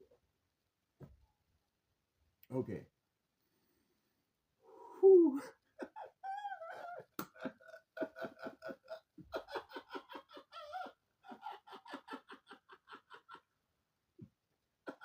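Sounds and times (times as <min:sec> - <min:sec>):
person laughing hard: 0:05.4 - 0:13.5.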